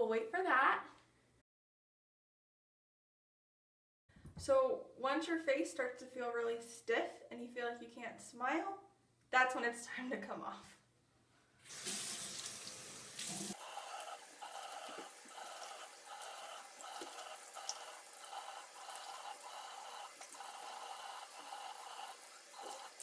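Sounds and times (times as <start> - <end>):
tap water running into sink: 11.7 - 23.0
water splashing onto face: 11.7 - 23.0.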